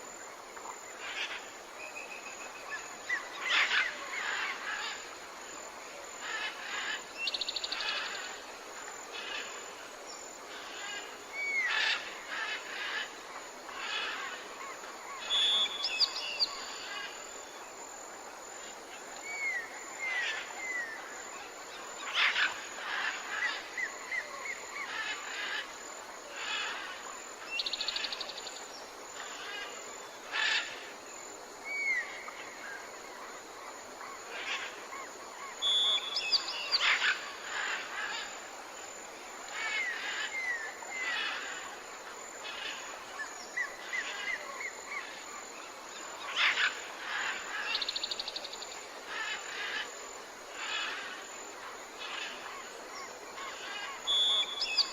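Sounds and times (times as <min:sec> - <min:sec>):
background hiss: 0:00.0 - 0:54.9
birds calling and singing: 0:35.5 - 0:38.3.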